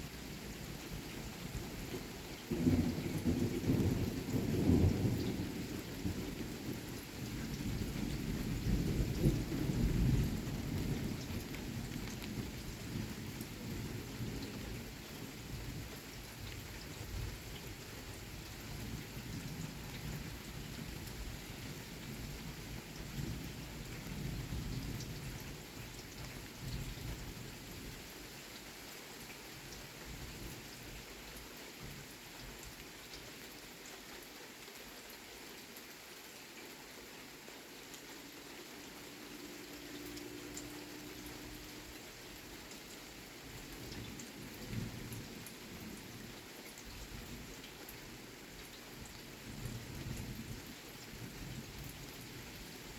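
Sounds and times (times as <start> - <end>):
steady rain falling: 0.0 - 52.9
rolling thunder rumbles: 2.5 - 6.7.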